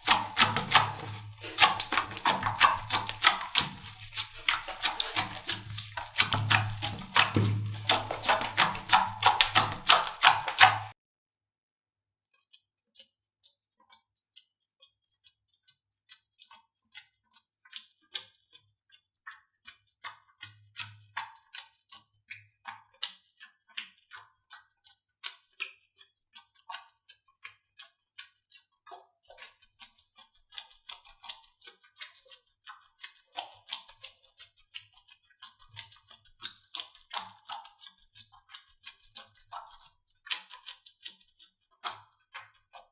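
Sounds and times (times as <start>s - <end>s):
slime clicking and popping: 0.0s - 10.9s.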